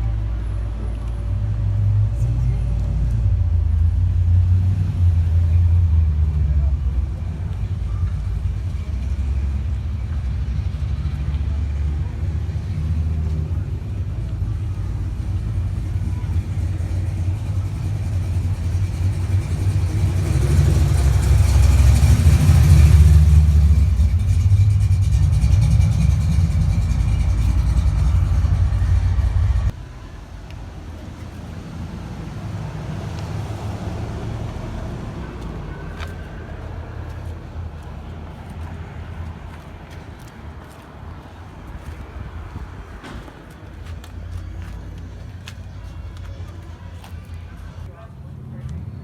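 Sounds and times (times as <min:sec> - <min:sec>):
outdoor background: 0:00.0 - 0:49.0
car engine running: 0:13.8 - 0:29.8.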